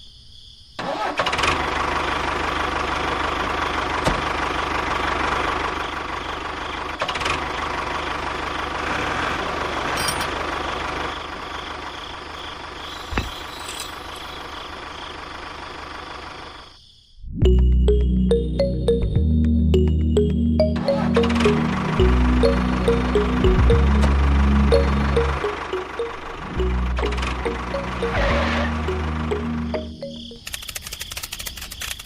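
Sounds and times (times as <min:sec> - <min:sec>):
sharp clicks: 0:30.3 - 0:32.0.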